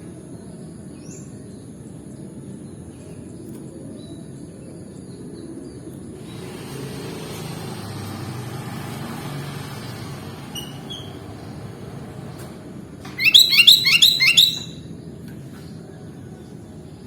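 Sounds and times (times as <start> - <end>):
passing motor vehicle rumble: 6.2 - 14.8
faint bird chirps: 13.2 - 14.8.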